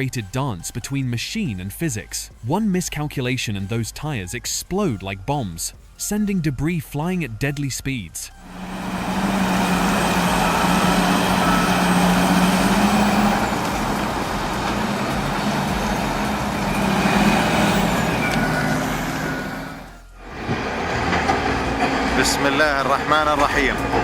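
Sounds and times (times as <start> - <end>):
heavy diesel engine drone: 8.3 - 24.0.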